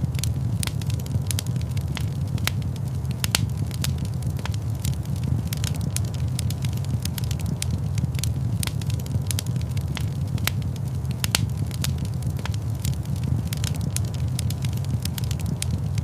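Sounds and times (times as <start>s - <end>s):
fire crackling and popping: 0.0s - 16.0s
low rumble of flames: 0.0s - 16.0s.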